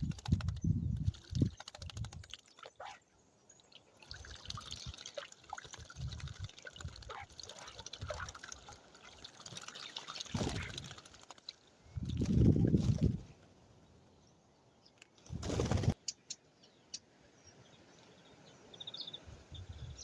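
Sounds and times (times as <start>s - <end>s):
birds splashing in water: 0.0s - 13.2s.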